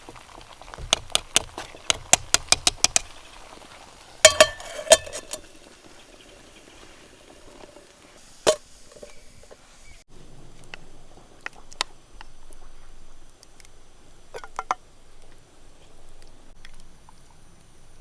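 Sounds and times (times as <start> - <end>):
metal utensil clinking against pot: 4.2 - 5.8.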